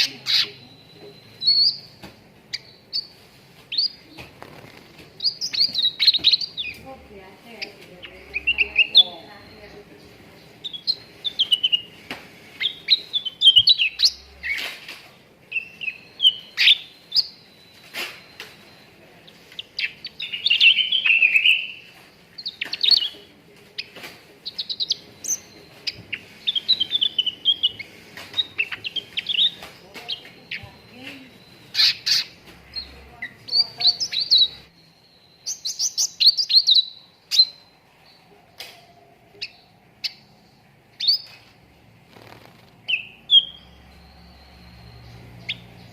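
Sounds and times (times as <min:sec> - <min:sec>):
bird chirping and trilling: 0:00.0 - 0:14.8, 0:15.4 - 0:38.3, 0:39.3 - 0:41.5, 0:42.1 - 0:45.9.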